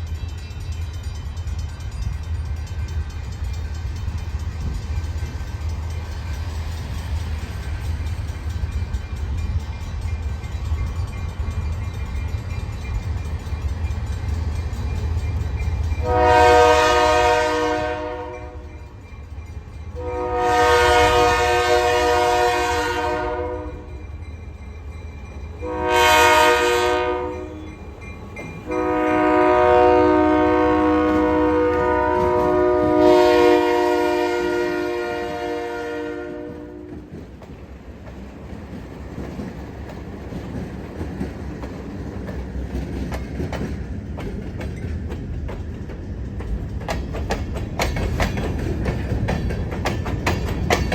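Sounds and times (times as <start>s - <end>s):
wheels clicking over rail joints: 0.0s - 16.3s, 36.5s - 50.9s
train rumbling past: 0.0s - 50.9s
locomotive horn blasts: 16.0s - 18.7s, 20.0s - 24.0s, 25.6s - 27.7s, 28.7s - 37.1s.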